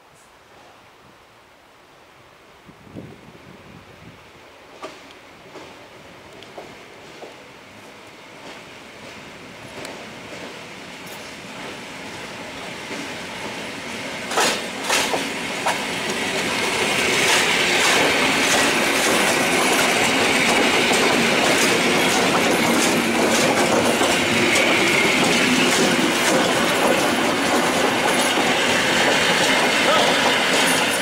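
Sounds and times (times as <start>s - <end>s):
electric train running past: 4.4s - 31.0s
wheels clacking on rail joints: 14.2s - 31.0s.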